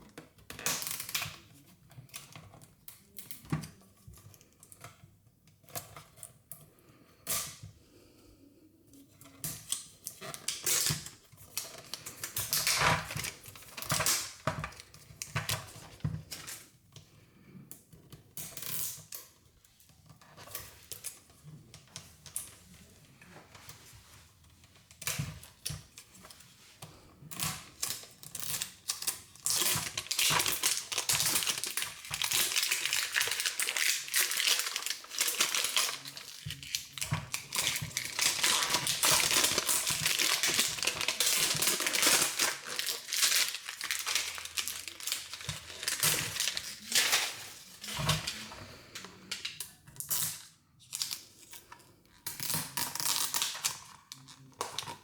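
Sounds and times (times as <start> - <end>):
plastic packaging crinkling and tearing: 9.6 - 16.6, 27.4 - 51.6, 52.3 - 55.0.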